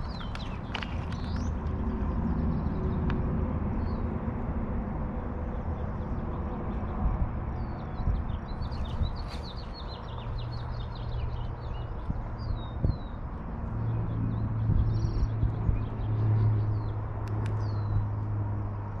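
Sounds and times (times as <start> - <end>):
songbird chirping: 0.0 - 3.1, 8.6 - 13.2.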